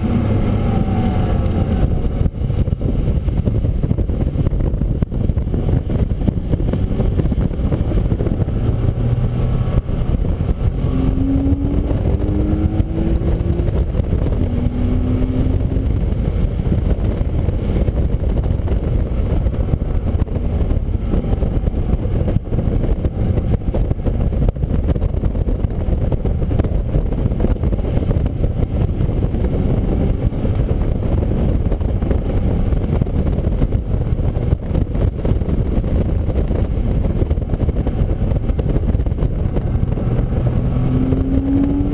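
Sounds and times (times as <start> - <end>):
car engine rumble: 0.0 - 41.9
road and wind noise: 0.0 - 41.9
rising engine notes: 6.4 - 18.2.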